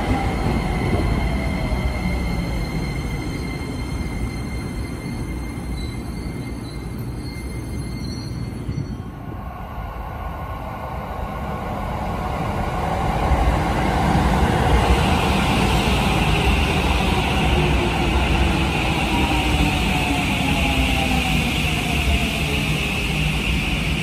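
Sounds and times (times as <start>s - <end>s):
train wheels rumbling on rail: 0.0s - 9.4s.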